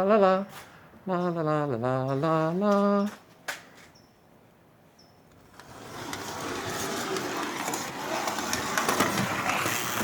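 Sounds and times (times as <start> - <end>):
toy train motor whirring: 5.6 - 10.0.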